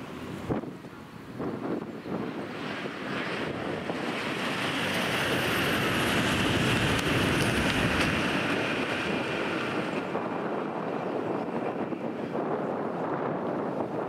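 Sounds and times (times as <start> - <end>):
train rushing past: 1.8 - 13.7.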